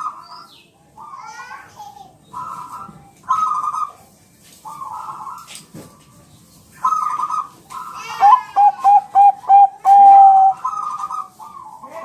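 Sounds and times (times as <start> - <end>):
dove cooing: 2.4 - 4.0, 6.8 - 12.0.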